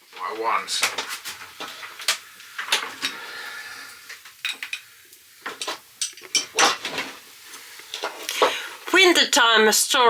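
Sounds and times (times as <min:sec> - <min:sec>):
metal pots clinking and knocking: 0:04.4 - 0:07.2.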